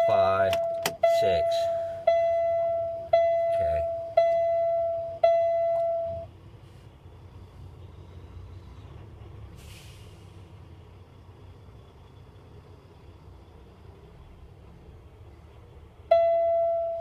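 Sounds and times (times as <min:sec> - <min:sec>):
low rumble in truck cab: 0:00.0 - 0:17.0
air hiss: 0:09.5 - 0:10.6.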